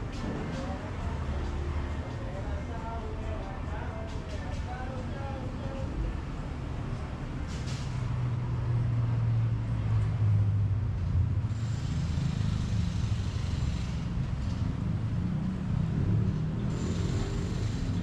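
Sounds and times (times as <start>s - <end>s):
vehicle engine humming: 0.0s - 18.0s
hiss: 11.5s - 14.2s, 16.7s - 18.0s.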